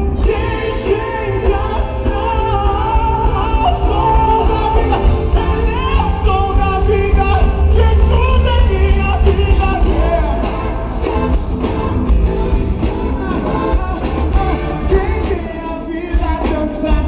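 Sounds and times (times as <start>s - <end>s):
person singing: 0.0s - 11.3s, 12.8s - 17.0s
live rock band playing: 0.0s - 17.0s
strong steady bass: 2.2s - 15.1s.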